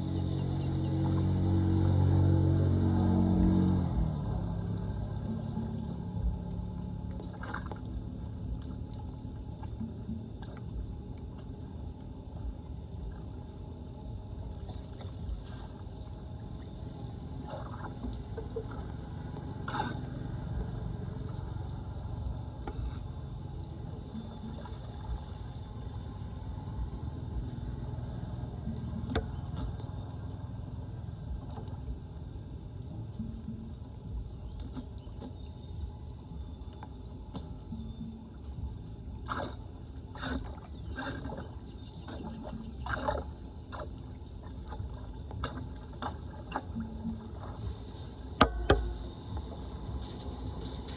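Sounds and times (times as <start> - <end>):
water gurgling down street drain: 39.2 - 49.4.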